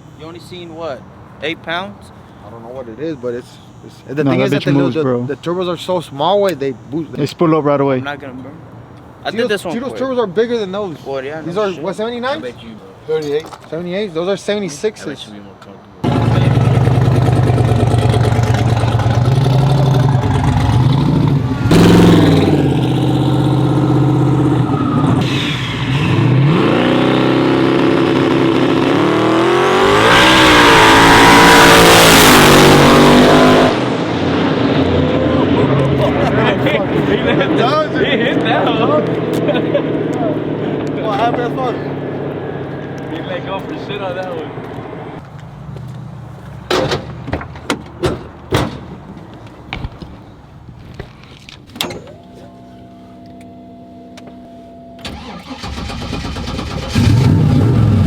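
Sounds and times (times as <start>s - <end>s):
truck engine accelerating hard: 16.0s - 45.2s, 55.1s - 58.0s
knocks and thuds: 46.7s - 50.2s.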